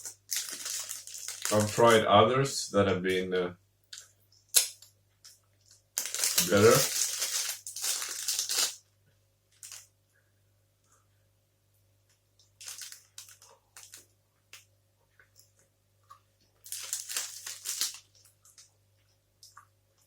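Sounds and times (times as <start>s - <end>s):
wrapper crinkling: 0.0s - 2.0s, 5.7s - 8.8s, 9.6s - 9.9s, 12.6s - 14.1s, 16.6s - 18.7s.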